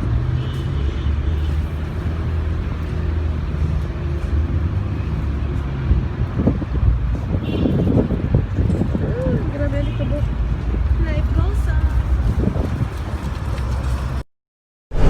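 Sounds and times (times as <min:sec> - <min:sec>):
traffic noise: 0:00.0 - 0:14.2
wind: 0:00.0 - 0:14.2
vehicle engine humming: 0:01.4 - 0:07.3.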